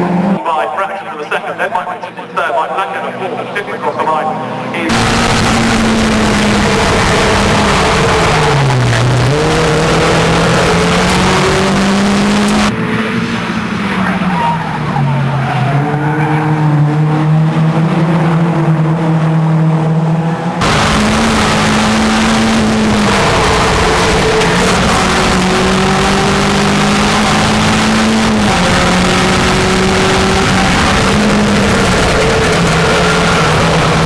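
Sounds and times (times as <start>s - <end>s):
race car engines running hard: 0.0s - 0.4s, 2.8s - 34.0s.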